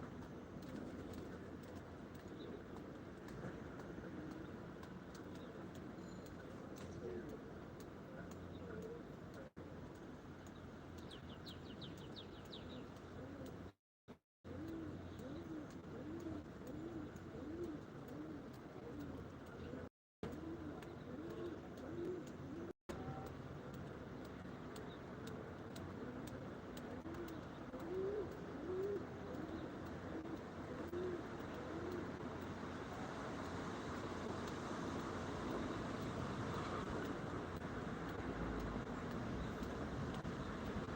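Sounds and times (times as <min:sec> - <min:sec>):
pigeon cooing: 0:13.1 - 0:13.7, 0:14.5 - 0:22.7, 0:26.0 - 0:32.2.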